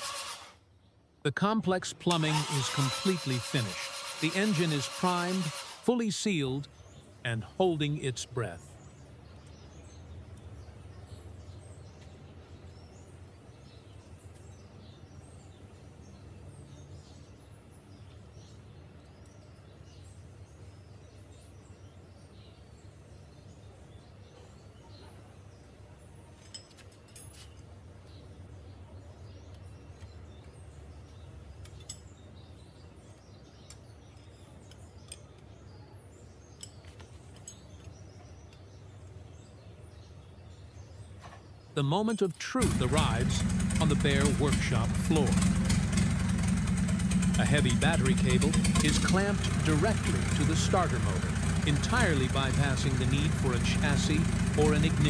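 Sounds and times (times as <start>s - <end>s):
small birds chirping: 4.4s - 55.0s
light clinks: 26.3s - 27.7s, 36.4s - 38.6s
low steady hum: 41.7s - 55.0s.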